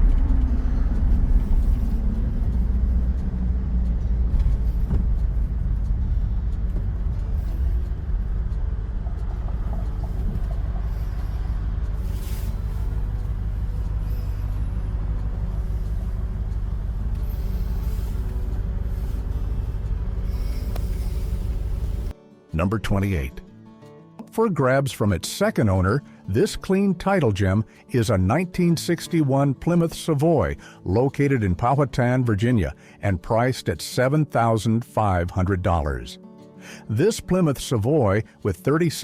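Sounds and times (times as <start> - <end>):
car engine rumbling: 0.0 - 22.1.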